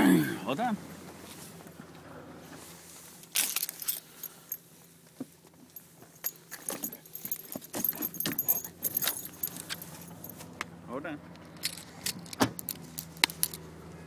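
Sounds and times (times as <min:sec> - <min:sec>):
small metal objects jangling: 0:03.3 - 0:05.0, 0:05.6 - 0:10.5, 0:11.4 - 0:13.6.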